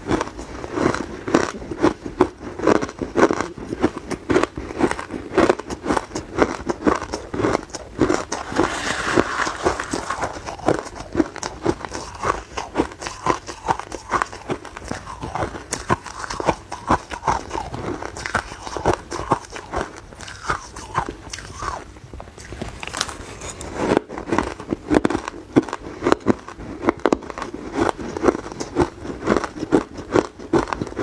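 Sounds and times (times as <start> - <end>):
ice cubes being chewed: 0.0 - 31.0.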